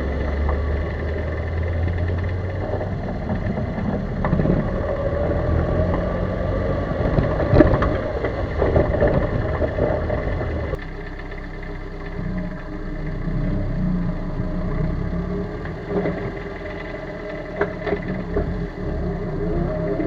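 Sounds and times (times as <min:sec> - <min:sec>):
car engine hum: 0:00.0 - 0:20.0
car knocks and rattles: 0:00.2 - 0:10.9.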